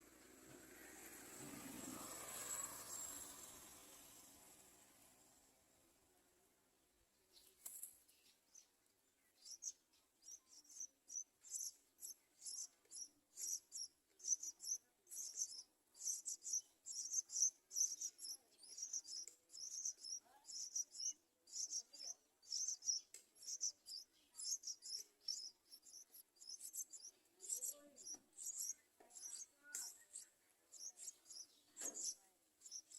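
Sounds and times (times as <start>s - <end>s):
nestlings begging chirps: 9.3s - 32.9s.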